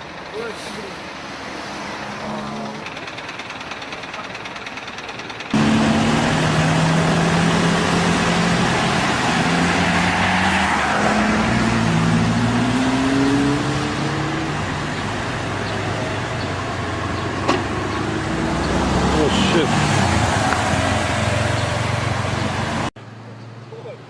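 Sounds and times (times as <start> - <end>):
road noise: 0.0 - 24.0
car engine running: 2.2 - 7.2.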